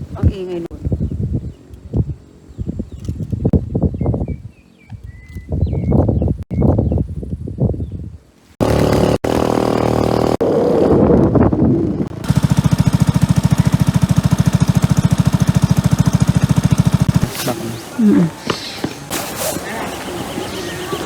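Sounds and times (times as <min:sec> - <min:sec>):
motorcycle engine chugging: 0:08.6 - 0:21.0.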